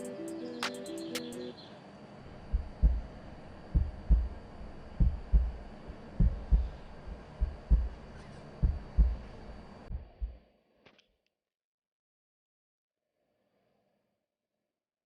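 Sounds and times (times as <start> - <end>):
deep heartbeat-like thumps: 2.5 - 10.4.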